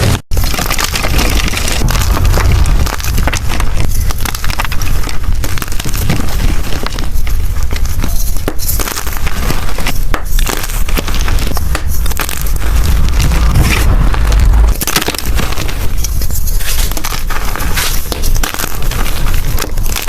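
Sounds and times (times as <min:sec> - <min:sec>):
low rumble: 0:00.0 - 0:05.2, 0:11.4 - 0:16.7.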